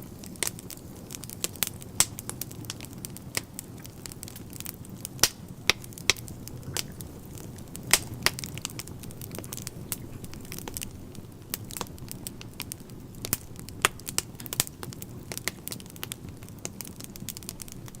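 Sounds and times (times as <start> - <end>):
fire crackling in a stove: 0.0 - 18.0
low steady rumble: 4.0 - 15.3
sharp pops: 5.2 - 10.9.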